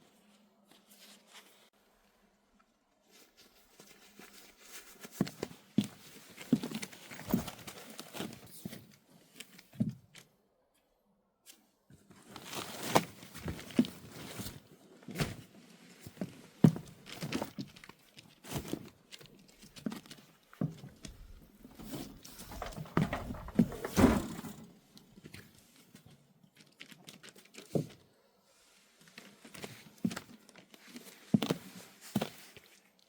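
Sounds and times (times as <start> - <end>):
handling knocks and rustling: 7.1 - 8.4, 20.0 - 24.7.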